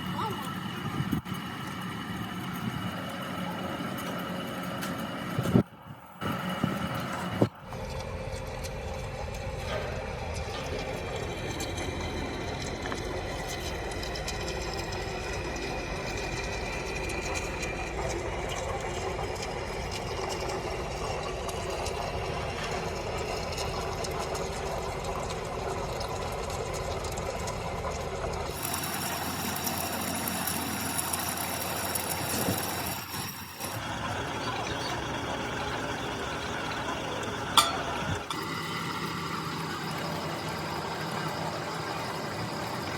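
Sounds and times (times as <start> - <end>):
different machine sound: 0.0 - 42.9
workshop machinery running: 0.0 - 42.9.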